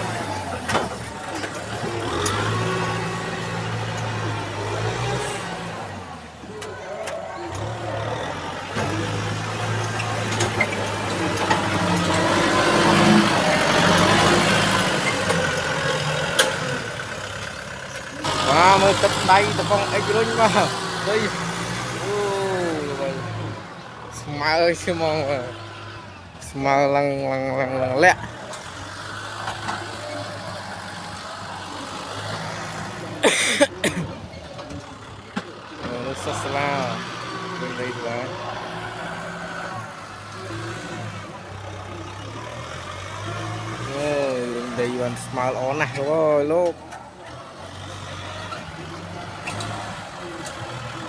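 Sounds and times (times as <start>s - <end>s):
tractor engine running: 0.0s - 51.0s
voice: 18.1s - 23.6s, 24.2s - 25.6s, 26.4s - 28.3s, 35.8s - 38.5s, 43.8s - 47.3s.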